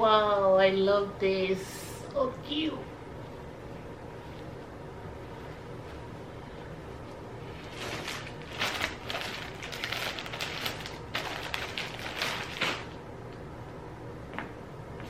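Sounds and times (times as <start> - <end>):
low background noise: 0.0 - 15.0
plastic packaging crinkling: 7.2 - 13.0.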